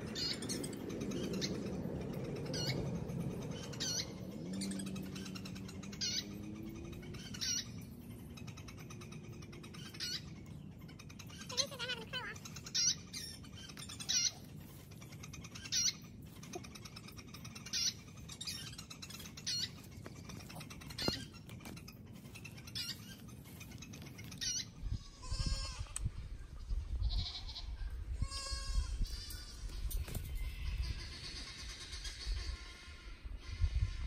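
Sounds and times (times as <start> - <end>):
bird calling: 0.0 - 26.1.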